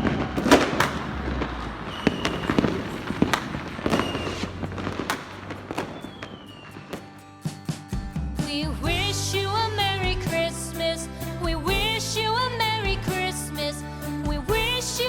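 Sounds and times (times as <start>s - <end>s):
firework whistles: 0.0s - 7.2s
firecrackers banging and popping: 0.0s - 7.9s.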